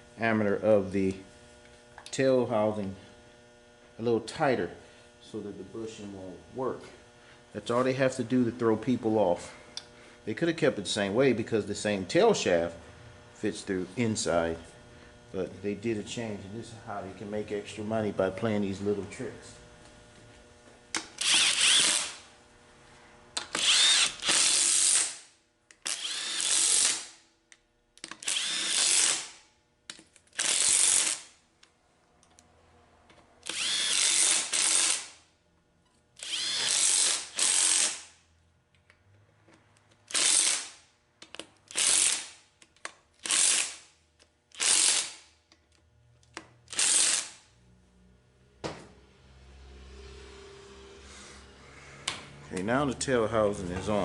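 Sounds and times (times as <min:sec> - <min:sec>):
power tool whirring: 0:12.4 - 0:22.4, 0:23.2 - 0:27.3, 0:28.0 - 0:29.5, 0:30.2 - 0:31.4, 0:33.4 - 0:35.3, 0:36.2 - 0:38.2, 0:40.0 - 0:40.9, 0:41.6 - 0:42.5, 0:43.2 - 0:43.9, 0:44.5 - 0:45.4, 0:46.2 - 0:47.6.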